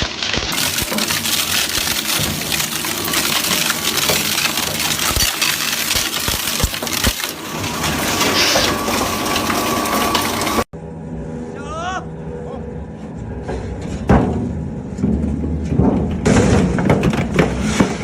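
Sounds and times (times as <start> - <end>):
shredder grinding: 0.0 - 10.7.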